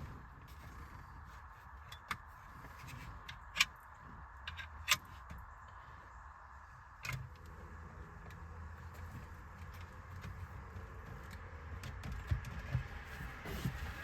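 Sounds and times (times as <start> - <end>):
low steady hum: 0.0 - 14.0
light rustling: 7.0 - 14.0.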